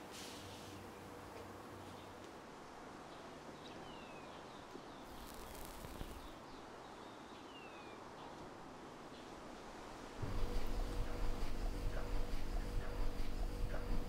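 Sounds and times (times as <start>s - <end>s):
soft hiss: 5.0s - 6.6s.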